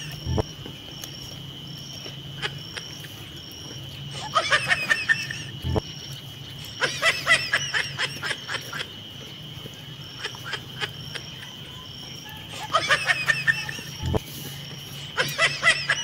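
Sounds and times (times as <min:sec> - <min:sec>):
steady high-pitched tone: 0:00.0 - 0:00.5
high-pitched snickering laughter: 0:02.3 - 0:03.3, 0:04.1 - 0:05.9, 0:06.6 - 0:09.3, 0:10.0 - 0:16.0.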